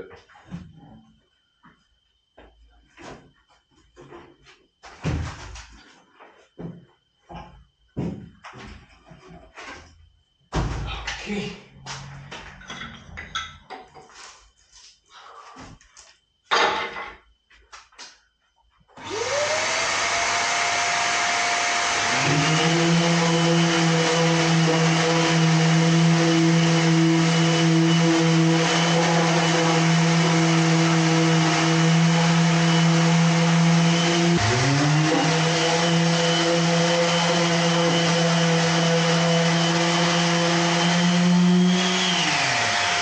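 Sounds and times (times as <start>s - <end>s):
orbital sander sanding wood: 19.0s - 43.0s
shop vacuum running: 19.0s - 43.0s.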